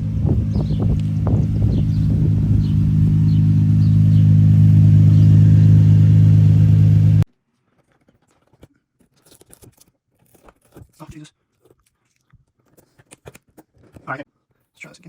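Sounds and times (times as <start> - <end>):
car engine idling: 0.0 - 7.3.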